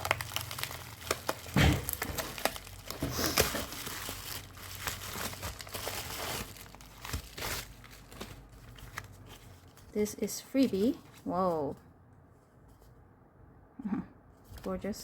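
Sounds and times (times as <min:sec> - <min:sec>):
paper packaging crinkling: 0:00.0 - 0:11.8.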